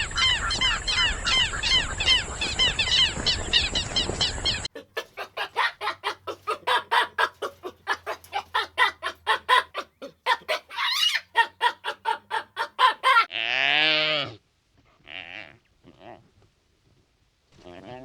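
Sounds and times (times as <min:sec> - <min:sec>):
animal clucking calls: 0:00.1 - 0:13.3.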